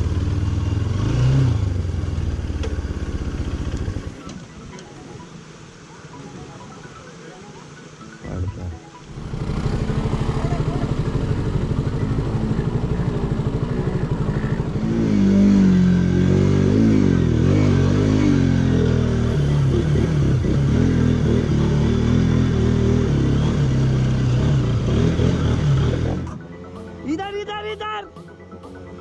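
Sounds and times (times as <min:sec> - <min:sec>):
motorcycle engine revving: 0:00.0 - 0:04.3, 0:09.1 - 0:26.5.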